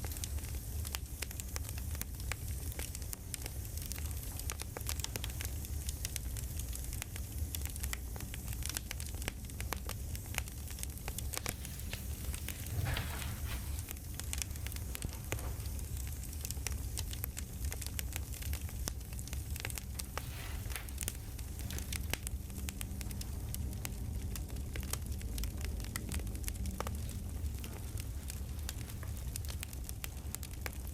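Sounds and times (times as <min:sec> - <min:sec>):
campfire crackling: 0:00.0 - 0:30.9
low rumble of burning wood: 0:00.0 - 0:30.9
rustling rush: 0:11.1 - 0:15.8, 0:19.7 - 0:22.3.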